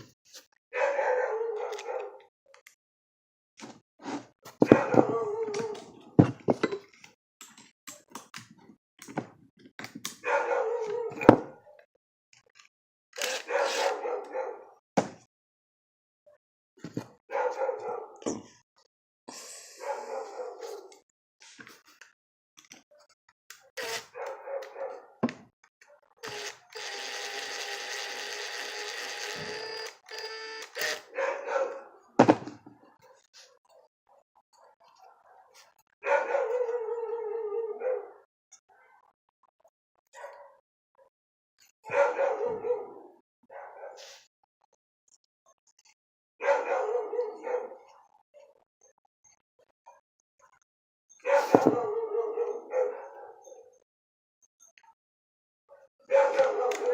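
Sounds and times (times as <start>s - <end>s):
dog barking: 0.7s - 2.3s, 4.6s - 5.8s, 10.2s - 11.8s, 13.4s - 14.8s, 17.3s - 18.2s, 19.8s - 21.0s, 24.1s - 25.2s, 31.1s - 32.1s, 34.8s - 39.0s, 40.1s - 41.1s, 41.9s - 44.1s, 46.4s - 48.5s, 51.2s - 53.8s, 55.7s - 56.9s.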